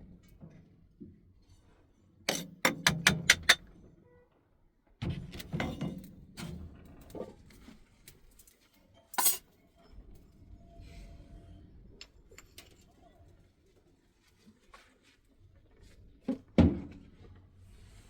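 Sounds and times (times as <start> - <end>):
sharp knocks of hard objects: 2.3 - 3.6
scraping and handling noise: 8.3 - 9.4.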